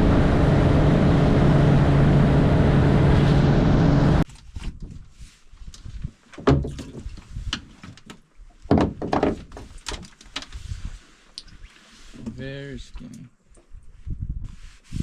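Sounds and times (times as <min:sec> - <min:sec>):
knocks and thumps on boat: 0:06.4 - 0:10.1.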